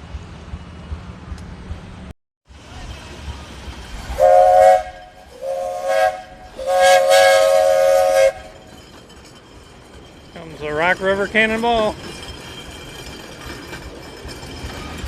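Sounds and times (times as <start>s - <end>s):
train whistle blasts: 4.1s - 8.6s.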